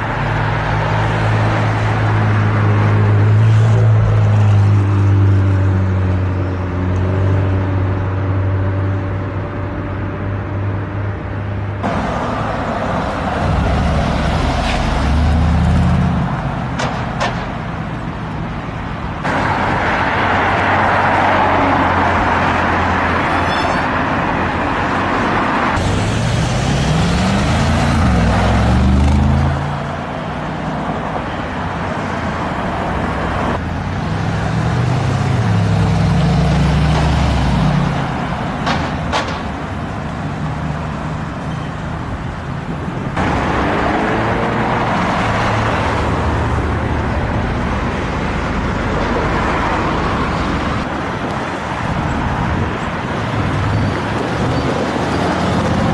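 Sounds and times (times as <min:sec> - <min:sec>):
car engines accelerating past: 0:25.7 - 0:29.8.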